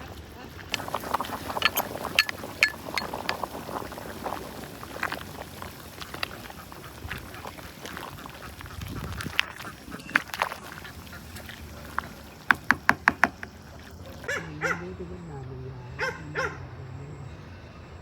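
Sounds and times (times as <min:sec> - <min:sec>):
ducks quacking: 0:00.8 - 0:12.5
sharp clicks and knocks: 0:12.0 - 0:13.6.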